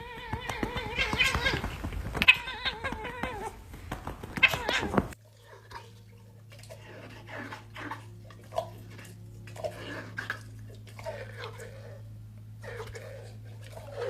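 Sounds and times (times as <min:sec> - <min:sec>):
cat meowing loudly: 0:00.0 - 0:03.6, 0:04.3 - 0:05.2
soft animal sounds: 0:00.0 - 0:14.0
steady low hum: 0:00.0 - 0:14.0.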